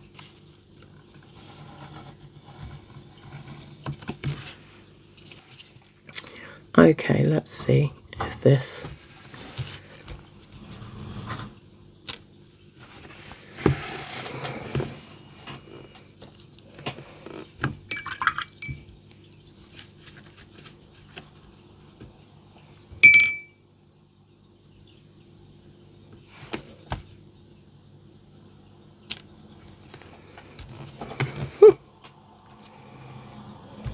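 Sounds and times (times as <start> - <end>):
paintbrush clinking on glass jar: 17.9 - 18.8, 23.0 - 23.6.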